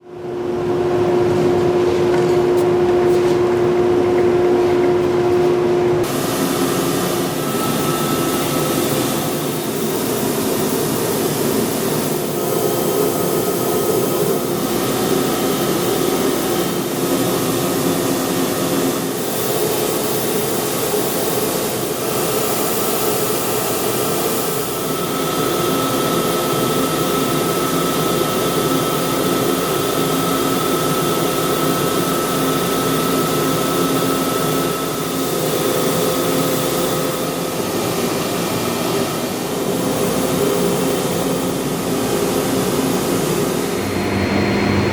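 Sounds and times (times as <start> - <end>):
belt sander running: 1.0 - 21.3.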